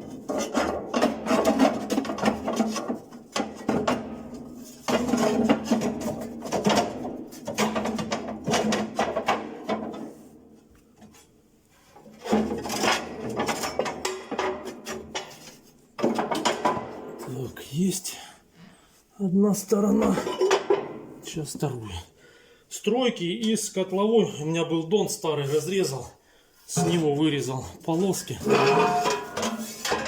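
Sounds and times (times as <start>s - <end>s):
steel plate scraping against metal: 28.3s - 30.0s.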